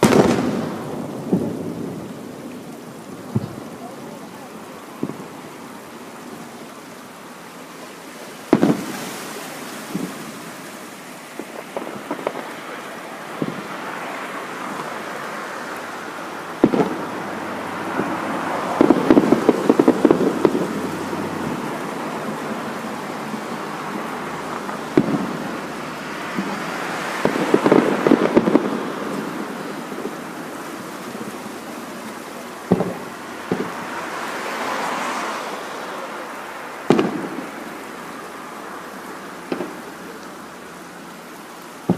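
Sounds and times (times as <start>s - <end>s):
firework shells booming: 0.0s - 5.8s, 8.5s - 10.6s, 11.3s - 14.0s, 16.4s - 34.2s, 36.8s - 37.8s, 39.4s - 40.3s
firework crackling pops: 0.0s - 6.5s, 8.4s - 15.3s, 16.1s - 34.8s, 35.8s - 38.1s, 39.4s - 40.3s.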